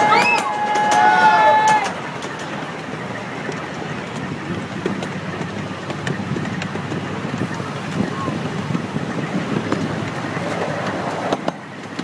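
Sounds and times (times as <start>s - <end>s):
train rumbling along track: 0.0s - 12.0s.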